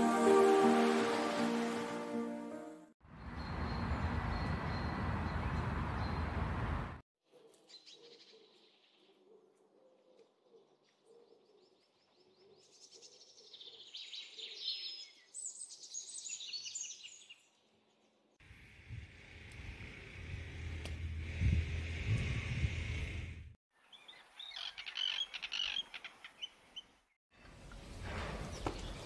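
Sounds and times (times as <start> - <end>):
birds chirping and trilling: 3.2 - 6.6, 7.4 - 18.2, 23.8 - 29.0.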